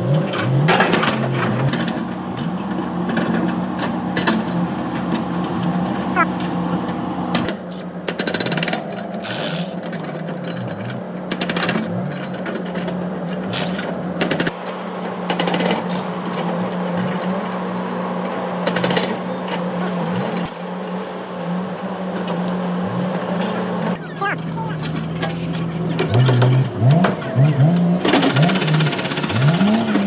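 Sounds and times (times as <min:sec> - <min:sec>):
power tool hammering on metal: 0:28.0 - 0:30.0.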